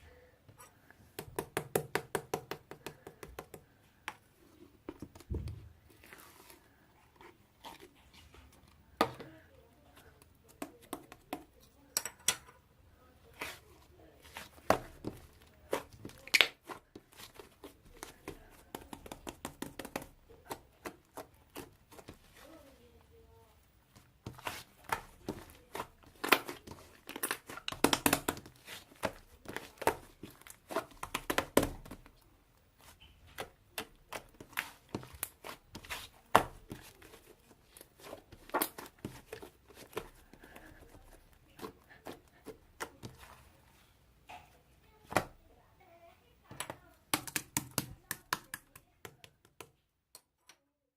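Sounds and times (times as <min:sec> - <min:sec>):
slime squishing and popping: 0:24.3 - 0:32.1.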